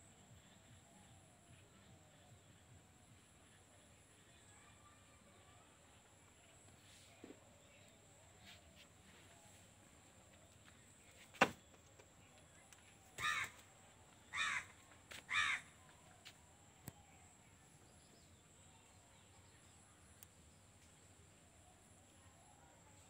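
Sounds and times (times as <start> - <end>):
harsh caw-like bird calls: 13.2 - 13.7, 14.3 - 15.7.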